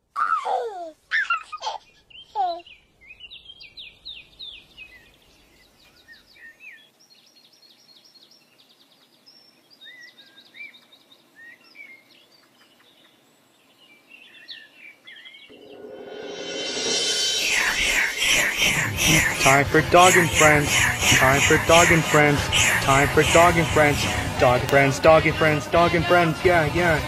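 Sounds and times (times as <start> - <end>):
baby giggling: 0.2 - 2.6
songbirds chirping and singing: 2.0 - 27.0
rising hiss: 15.5 - 25.7.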